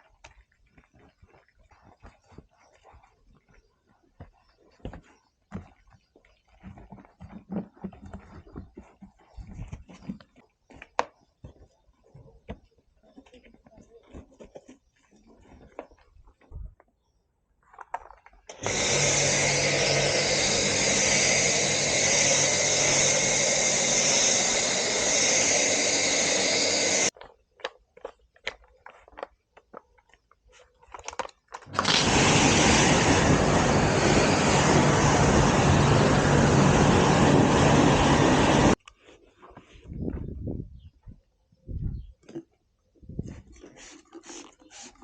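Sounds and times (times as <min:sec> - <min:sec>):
motor-driven cleaning machine running: 0:18.5 - 0:27.1, 0:31.7 - 0:38.8.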